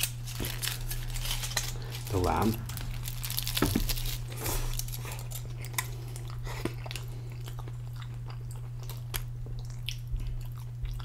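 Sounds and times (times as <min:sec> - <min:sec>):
steady low hum: 0:00.0 - 0:11.0
person chewing: 0:02.8 - 0:11.0.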